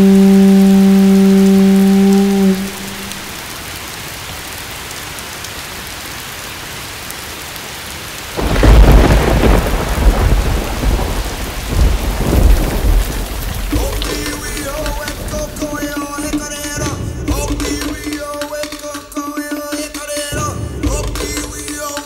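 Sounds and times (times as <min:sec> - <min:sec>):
steady rain: 0:00.0 - 0:22.0
rumbling thunderclap: 0:08.3 - 0:18.0.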